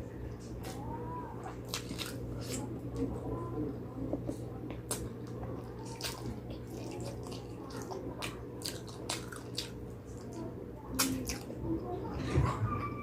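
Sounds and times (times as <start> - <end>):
wet chewing and lip-smacking: 4.2 - 10.4, 11.0 - 11.6.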